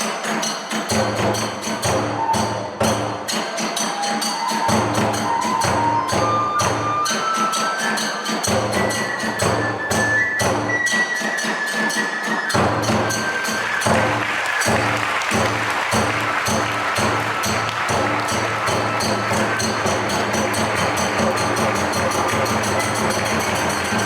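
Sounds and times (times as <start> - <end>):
drum beats: 0.0 - 24.0
flute melody: 1.6 - 24.0
small hand cymbal strikes: 16.6 - 24.0.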